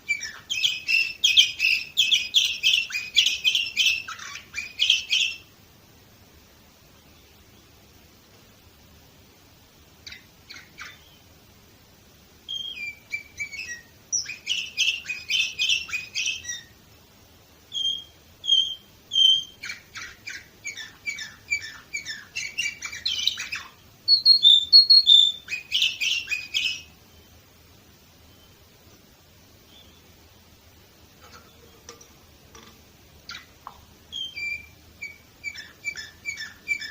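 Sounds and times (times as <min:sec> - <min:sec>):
canary singing: 0:00.0 - 0:05.6, 0:10.0 - 0:11.4, 0:12.4 - 0:16.8, 0:17.6 - 0:27.5, 0:29.6 - 0:30.6, 0:33.2 - 0:36.9.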